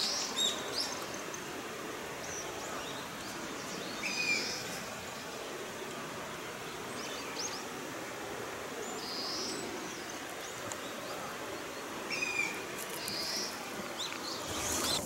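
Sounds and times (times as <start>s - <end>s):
steady background hiss: 0.0s - 15.0s
birds chirping and whistling: 12.1s - 15.0s.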